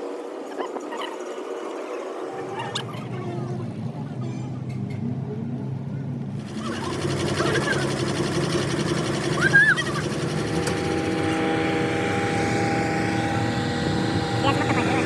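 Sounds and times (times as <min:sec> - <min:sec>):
engine running: 0:02.9 - 0:15.0
short rising and falling squeals: 0:09.1 - 0:14.4.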